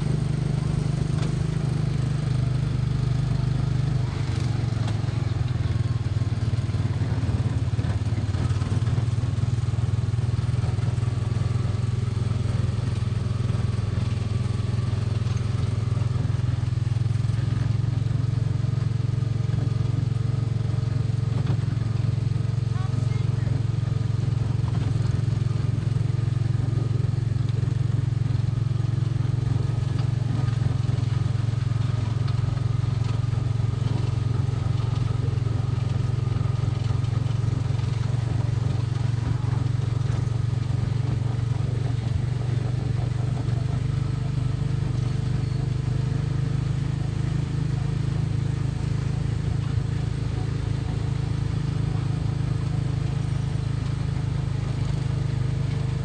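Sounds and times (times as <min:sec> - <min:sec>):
small gasoline engine running: 0:00.0 - 0:56.0.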